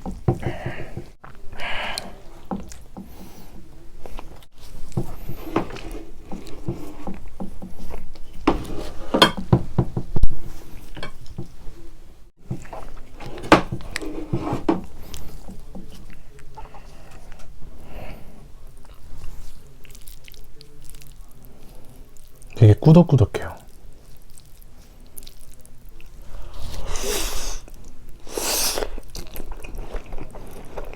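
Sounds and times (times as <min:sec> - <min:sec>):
chewing and wet mouth clicks: 0:24.1 - 0:26.2
slurping noodles: 0:26.2 - 0:30.9.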